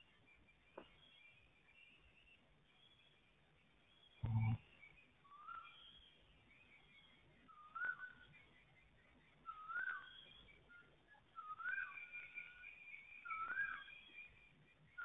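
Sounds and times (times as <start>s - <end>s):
faint high bird chirps: 0.0s - 15.0s
bird whistled call: 5.3s - 6.2s, 6.8s - 8.3s, 9.4s - 15.0s.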